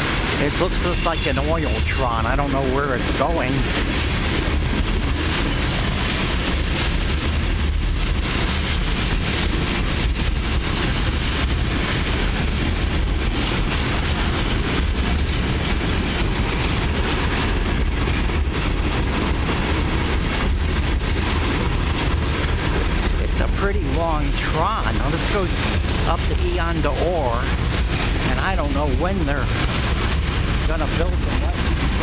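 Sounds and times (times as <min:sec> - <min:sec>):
train wheels rumbling on rail: 0:00.0 - 0:32.0
wind buffeting microphone: 0:00.0 - 0:32.0.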